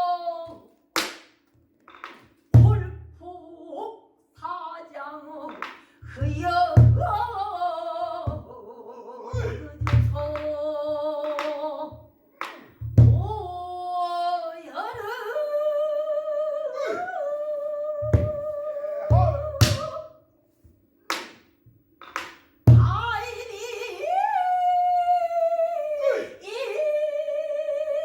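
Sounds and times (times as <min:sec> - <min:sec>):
woman singing long wavering notes: 0:00.0 - 0:00.7, 0:03.2 - 0:12.0, 0:13.1 - 0:20.3, 0:22.8 - 0:28.0
deep drum thumps: 0:19.1 - 0:19.8, 0:22.7 - 0:23.2.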